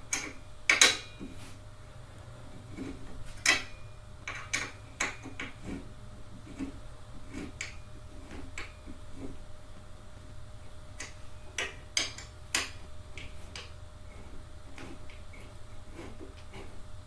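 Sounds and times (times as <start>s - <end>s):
clicks and knocks of metal hardware: 0.1s - 1.3s, 3.4s - 5.6s, 11.0s - 13.7s.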